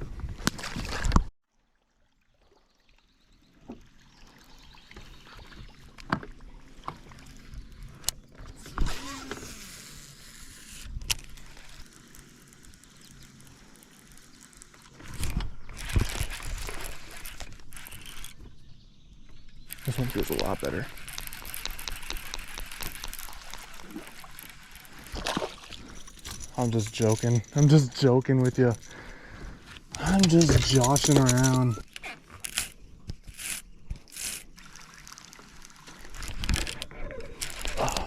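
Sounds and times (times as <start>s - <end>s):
knocks and clicks: 19.7s - 24.2s.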